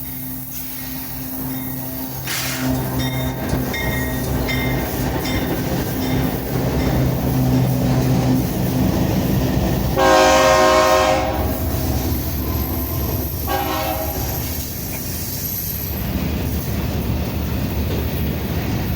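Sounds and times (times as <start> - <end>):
freight train rumbling past: 0.0 - 18.9
locomotive air horn blasts: 10.0 - 14.7.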